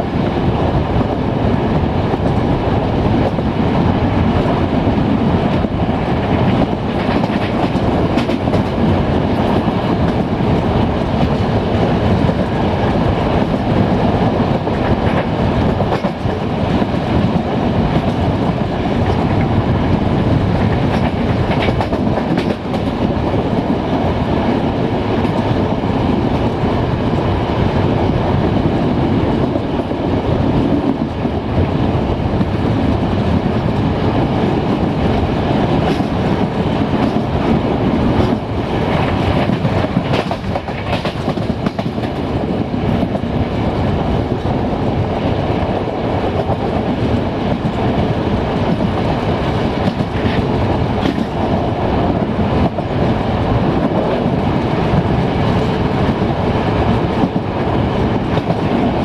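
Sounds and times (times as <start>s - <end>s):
train wheels rumbling on rails: 0.0s - 59.0s
clicks from rail joints: 20.7s - 23.0s, 39.0s - 42.2s.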